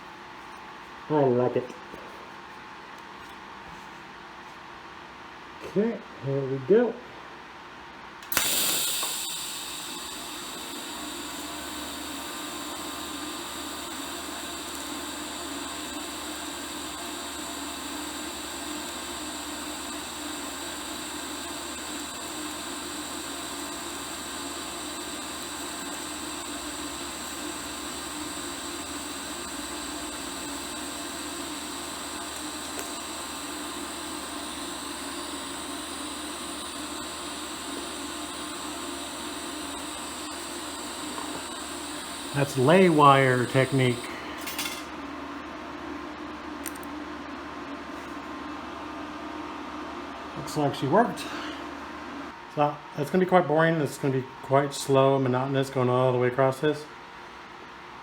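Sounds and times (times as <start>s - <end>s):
welding arc hissing: 8.2s - 44.5s.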